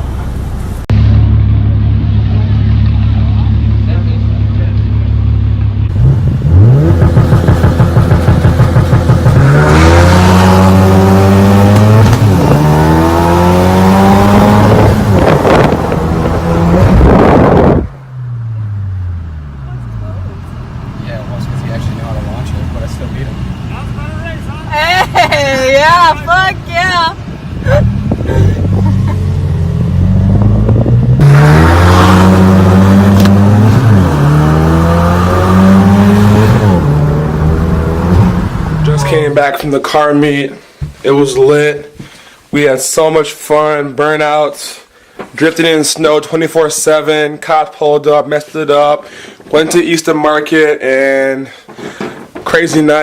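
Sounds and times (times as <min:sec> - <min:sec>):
car engine revving: 0:00.7 - 0:23.7, 0:26.8 - 0:39.7.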